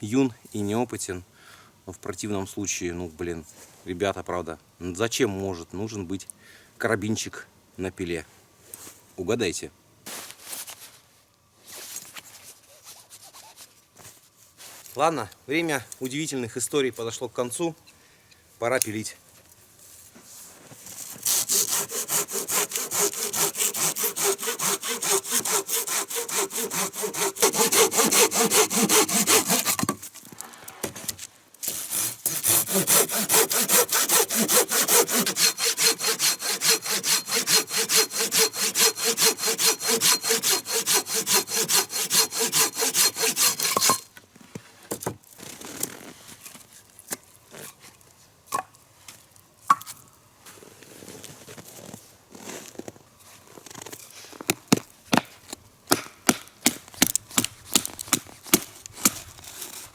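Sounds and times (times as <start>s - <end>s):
hand saw cutting wood: 21.0s - 30.0s, 31.6s - 44.1s, 57.0s - 59.9s.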